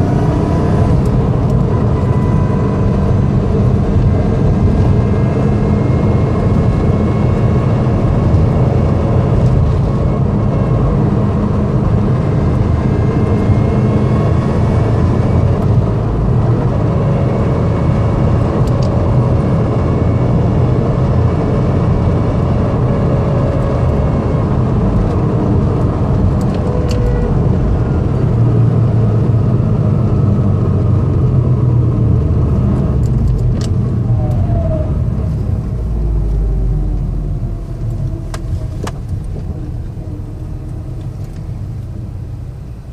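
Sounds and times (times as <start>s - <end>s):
car engine: 0.0s - 42.9s
road noise: 0.0s - 42.9s
gear whine: 22.8s - 41.8s.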